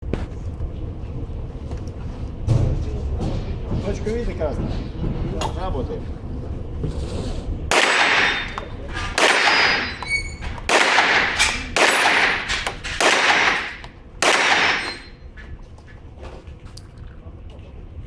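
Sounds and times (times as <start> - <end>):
pistol shots with echo: 7.7 - 15.2.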